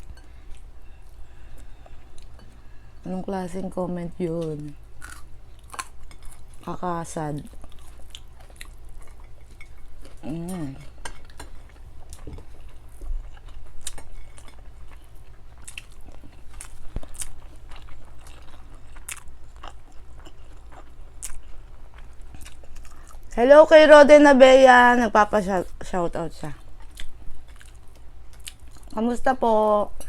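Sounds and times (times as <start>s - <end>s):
steady low hum: 0.0s - 30.0s
chewing and crunching fried fish: 4.3s - 23.4s, 26.4s - 29.1s
person humming: 10.2s - 11.0s.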